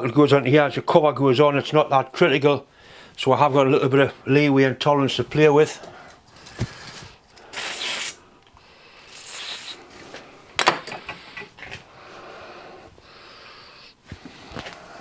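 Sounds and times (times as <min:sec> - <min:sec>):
short hissing bursts: 0:07.4 - 0:08.2, 0:09.0 - 0:09.8.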